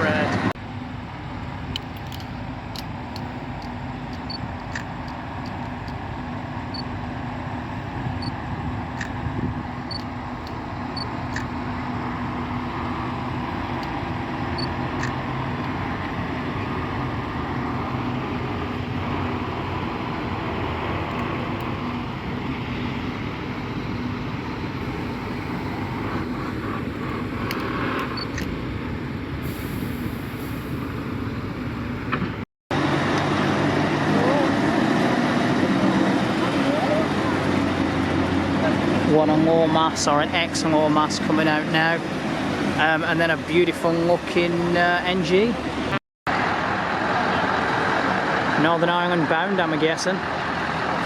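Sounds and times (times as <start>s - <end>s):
lorry diesel engines rumbling: 0.0s - 51.0s.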